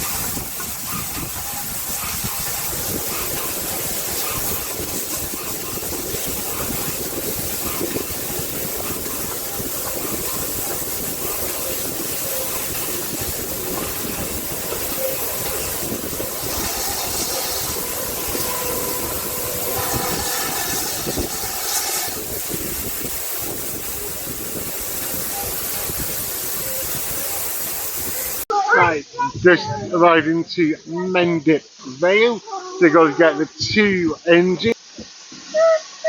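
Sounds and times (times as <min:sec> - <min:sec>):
train wheels rattling on track: 0:00.0 - 0:28.3
steam hiss: 0:00.0 - 0:36.0.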